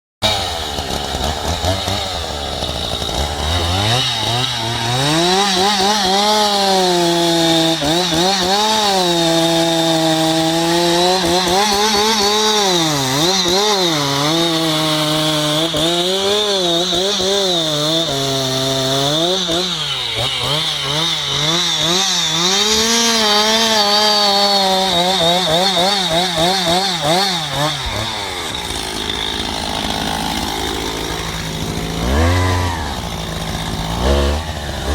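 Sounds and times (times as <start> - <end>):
chainsaw cutting into tree: 0.2 - 34.9.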